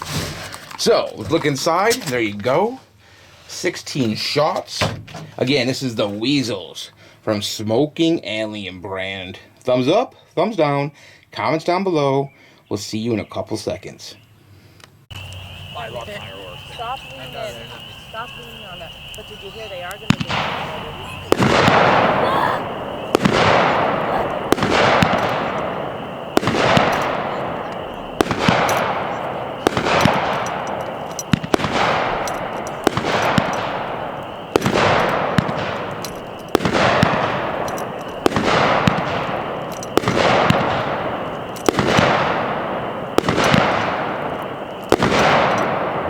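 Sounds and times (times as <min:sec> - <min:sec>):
firework bangs: 0:15.2 - 0:46.0.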